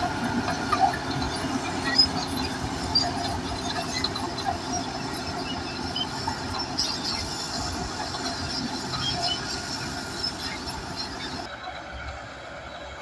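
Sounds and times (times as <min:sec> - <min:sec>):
bulldozer diesel engine: 0:00.0 - 0:13.0
steel tracks clanking and squeaking: 0:00.0 - 0:13.0.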